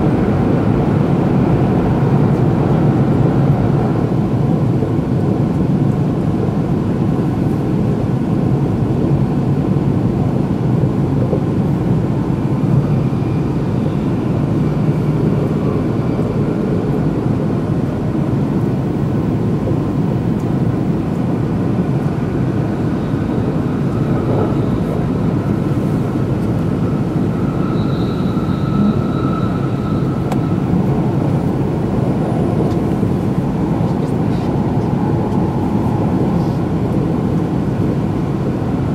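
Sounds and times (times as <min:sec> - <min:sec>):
wheels rumbling on rail: 0:00.0 - 0:38.9
faint high whine: 0:22.7 - 0:31.9.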